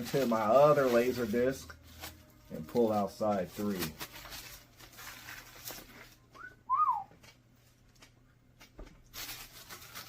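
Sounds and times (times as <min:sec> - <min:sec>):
two-note whistle: 0:06.4 - 0:07.1.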